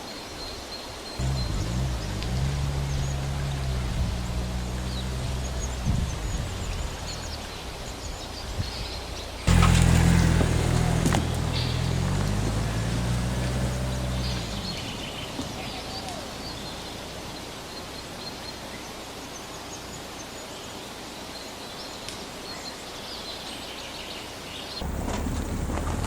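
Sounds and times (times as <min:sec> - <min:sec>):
small birds chirping: 0:00.0 - 0:25.9
low hum: 0:01.2 - 0:17.4.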